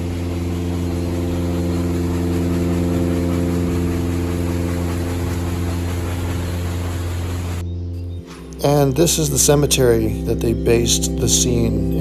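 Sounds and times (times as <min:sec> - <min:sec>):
low mechanical hum: 0:00.0 - 0:07.7.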